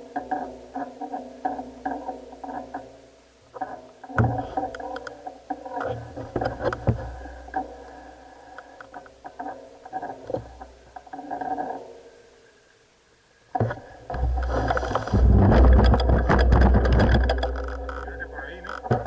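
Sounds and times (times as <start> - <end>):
bike knocking over bumps: 13.6 - 18.0.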